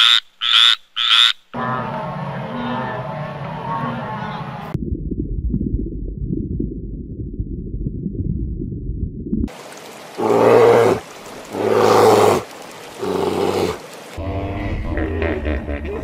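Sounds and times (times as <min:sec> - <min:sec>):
muffled low rumble with crackling: 0:03.4 - 0:09.5
bear roaring: 0:10.2 - 0:15.4.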